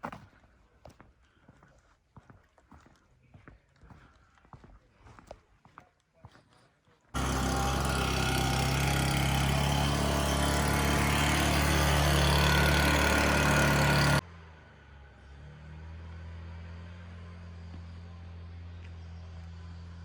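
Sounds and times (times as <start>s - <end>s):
vehicle engine running: 7.2s - 14.2s.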